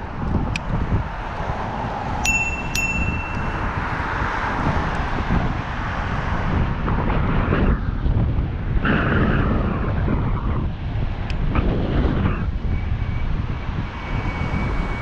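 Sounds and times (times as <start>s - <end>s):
wind buffeting microphone: 0.0s - 15.0s
bell ringing: 2.2s - 4.2s.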